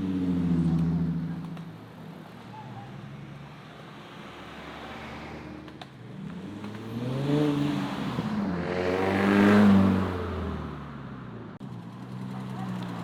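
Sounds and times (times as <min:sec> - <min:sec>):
car engine revving: 0:04.2 - 0:11.3.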